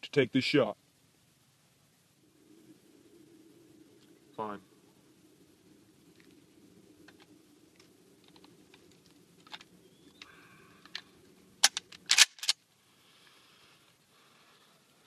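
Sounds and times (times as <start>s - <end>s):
sharp clicks: 7.0s - 12.6s.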